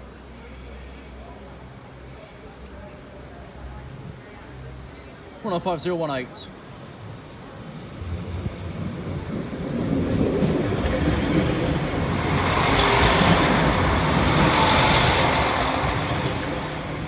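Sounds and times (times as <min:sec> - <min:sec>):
diesel train engine rumble: 0:06.6 - 0:17.0
train wheels on rails: 0:06.8 - 0:17.0.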